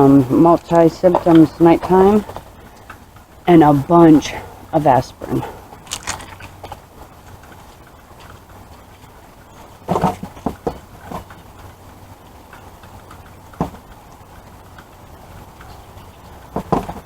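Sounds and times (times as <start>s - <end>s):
low steady hum: 0.0s - 17.0s
small items knocking and clicking: 5.8s - 6.6s.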